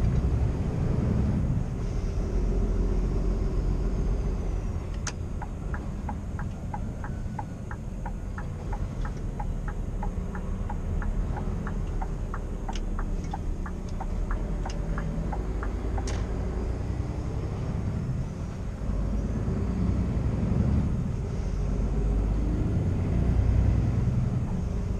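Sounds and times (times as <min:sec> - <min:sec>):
truck engine running: 0:00.0 - 0:17.6
turn signal ticking: 0:04.8 - 0:16.4, 0:24.2 - 0:24.9.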